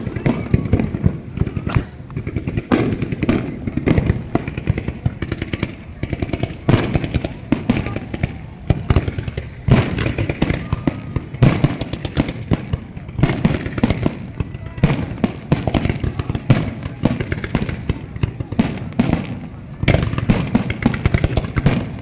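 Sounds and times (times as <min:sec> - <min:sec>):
fireworks booming and crackling: 0:00.0 - 0:22.0.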